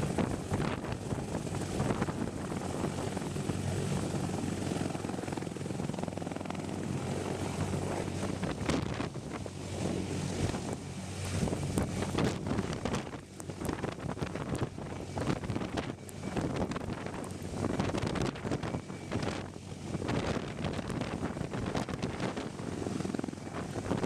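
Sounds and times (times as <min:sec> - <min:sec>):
helicopter engine and rotor hum: 0:00.0 - 0:24.0
wind buffeting microphone: 0:00.0 - 0:24.0.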